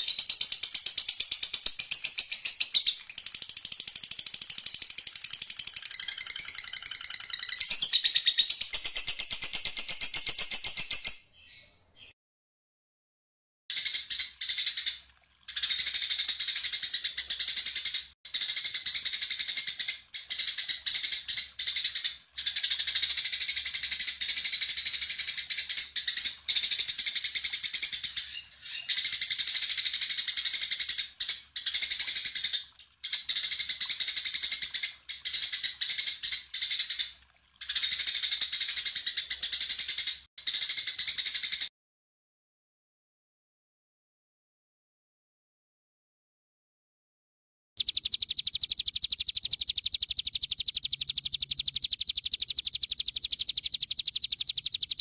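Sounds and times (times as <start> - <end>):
songbird chattering: 47.8 - 55.0.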